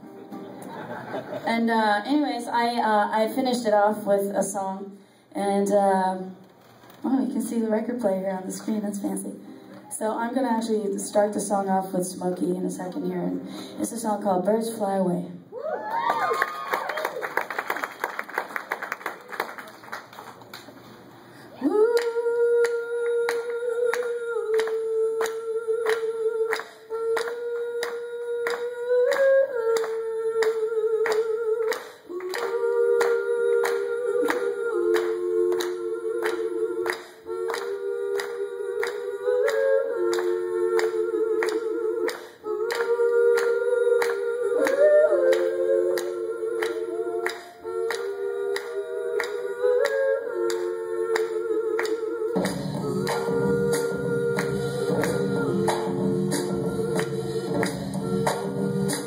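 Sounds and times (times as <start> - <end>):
woman singing wordless harmony: 7.1 - 15.3, 21.6 - 59.0.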